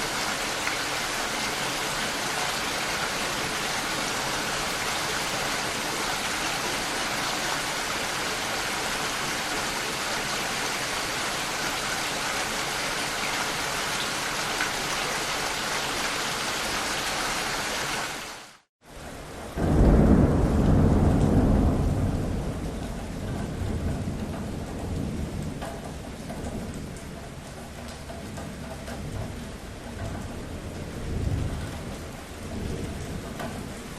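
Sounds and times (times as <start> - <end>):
rain hissing: 0.0 - 19.0
rushing water: 0.0 - 19.2
thunder rumbling: 19.4 - 33.9.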